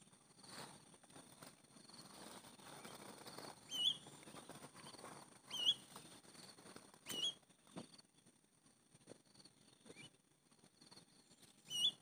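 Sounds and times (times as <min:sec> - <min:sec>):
squeaky bird calls: 0:03.7 - 0:04.1, 0:05.5 - 0:05.9, 0:07.0 - 0:07.4, 0:11.6 - 0:12.0.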